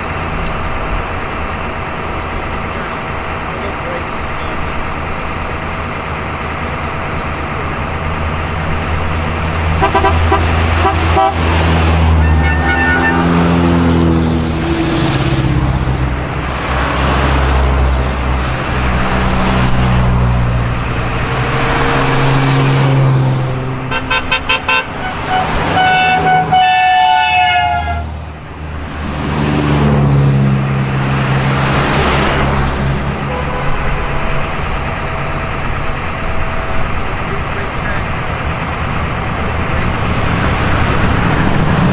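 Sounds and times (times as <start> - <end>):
car engines revving past: 0.0 - 41.9
car horn tooting: 9.7 - 13.8, 23.9 - 28.2, 33.2 - 34.7.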